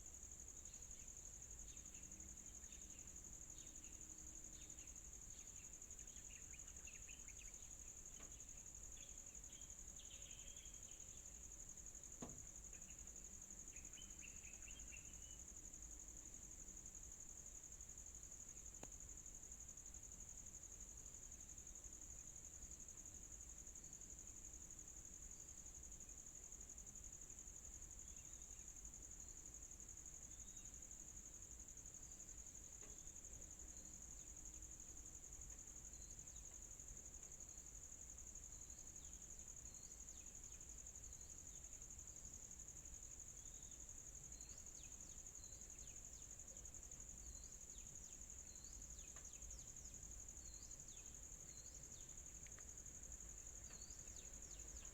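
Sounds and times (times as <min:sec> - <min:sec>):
insects droning shrilly: 0:00.0 - 0:15.7
low background noise: 0:00.0 - 0:54.9.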